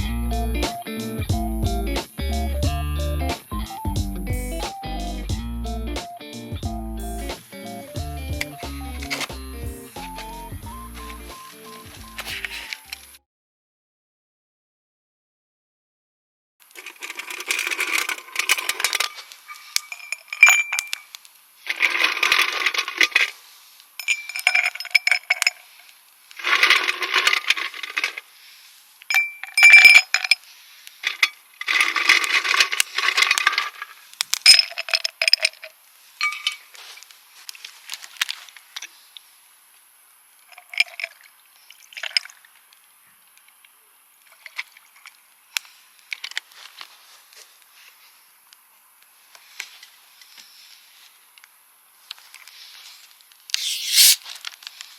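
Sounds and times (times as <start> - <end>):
cookware clinking and scraping: 12.2 - 12.9
sharp ringing clinks: 29.2 - 30.1.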